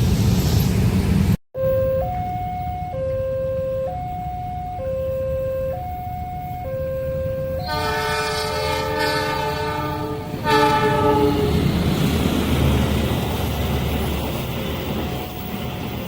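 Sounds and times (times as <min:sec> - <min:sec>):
train rumble: 0:00.0 - 0:01.4, 0:05.8 - 0:16.0
level crossing two-tone alarm: 0:01.6 - 0:08.1
train horn blast: 0:07.6 - 0:11.6.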